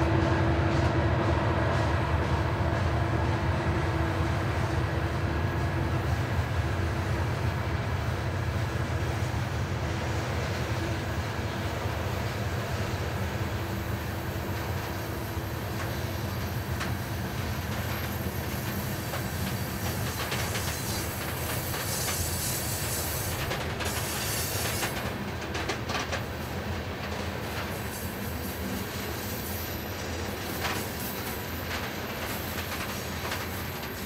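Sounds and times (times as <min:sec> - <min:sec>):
freight train wheels rumbling: 0:00.0 - 0:34.0
wheels clicking on rail: 0:14.3 - 0:34.0.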